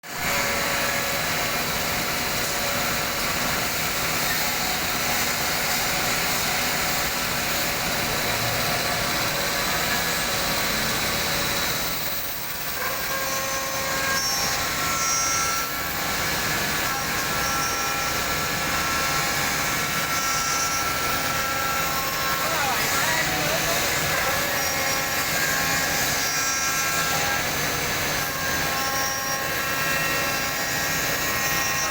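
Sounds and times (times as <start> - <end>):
cnc router running: 0.1 - 31.9.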